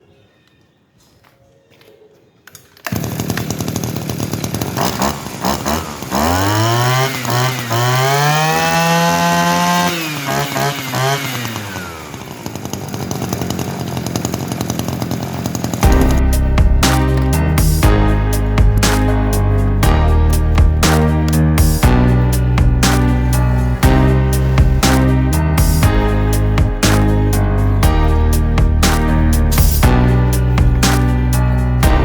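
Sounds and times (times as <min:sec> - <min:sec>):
small two-stroke engine revving: 0:02.9 - 0:16.2
music: 0:15.8 - 0:32.0.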